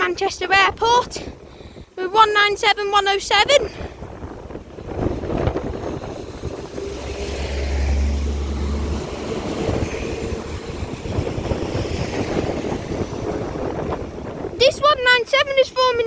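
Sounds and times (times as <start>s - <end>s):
wind buffeting microphone: 0.0s - 16.0s
train diesel engine drone: 3.8s - 15.4s.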